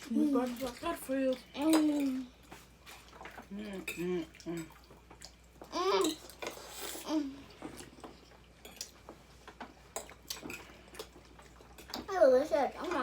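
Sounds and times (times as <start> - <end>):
chewing: 1.8 - 12.1.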